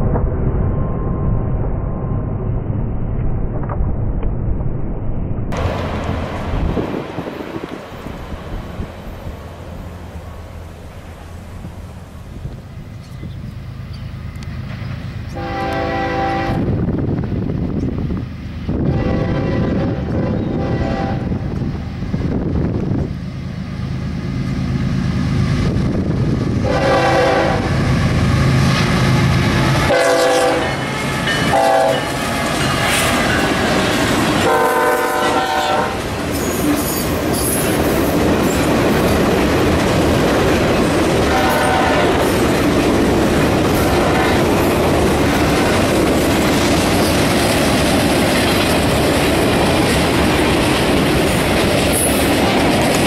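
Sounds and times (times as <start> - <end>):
train cars rumbling and clattering: 5.4 - 53.0
locomotive engine: 5.5 - 19.1, 21.3 - 35.2, 35.8 - 53.0
diesel locomotive horn: 15.3 - 16.8, 18.7 - 21.5, 26.6 - 27.9, 29.7 - 32.3, 34.4 - 37.0, 41.2 - 42.4, 43.7 - 44.7.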